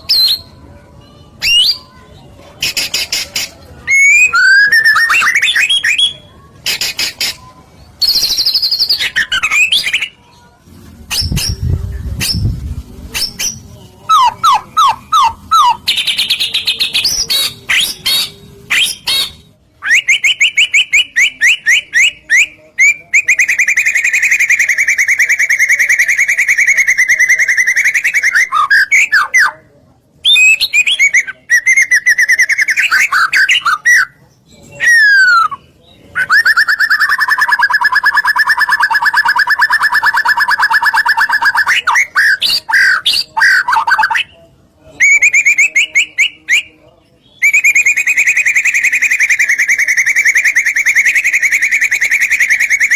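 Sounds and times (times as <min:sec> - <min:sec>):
songbird singing whistled phrases: 0:00.0 - 0:10.3, 0:11.1 - 0:12.6, 0:13.2 - 0:44.4, 0:45.0 - 0:52.9.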